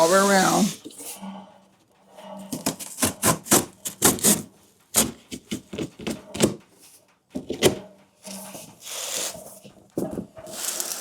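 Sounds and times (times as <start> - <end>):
knife sawing through cardboard: 2.5 - 5.2.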